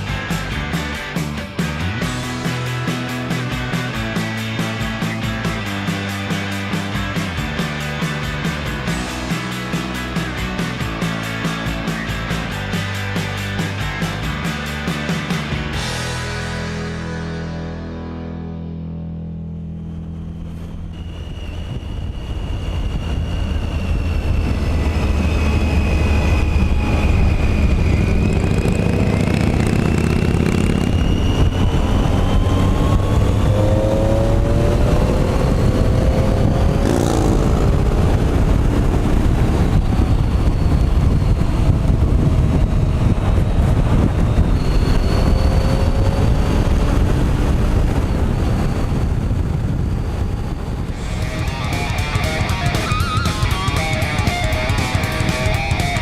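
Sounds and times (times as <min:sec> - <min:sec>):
motorcycle engine running: 0:00.0 - 0:17.9, 0:19.8 - 0:56.0
wind rush: 0:19.9 - 0:56.0.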